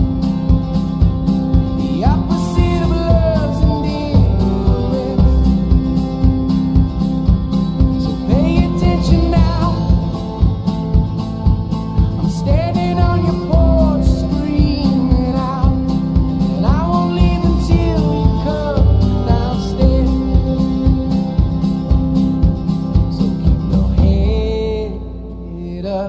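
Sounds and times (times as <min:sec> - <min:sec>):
country song with guitar: 0:00.0 - 0:26.0.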